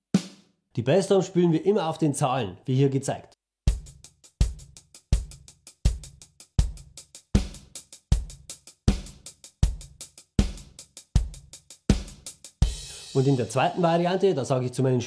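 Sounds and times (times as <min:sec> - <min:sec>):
snare drum hits: 0:00.2 - 0:00.4
hi-hat sixteenth notes: 0:03.7 - 0:13.8.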